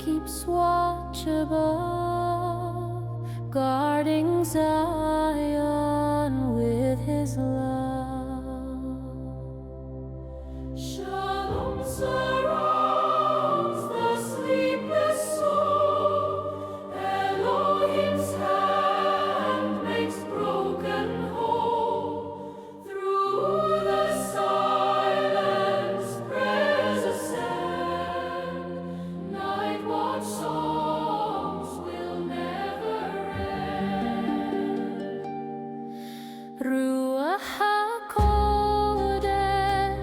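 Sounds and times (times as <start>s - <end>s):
sustained accompaniment: 10.3s - 35.3s
choir singing long notes: 10.7s - 35.6s.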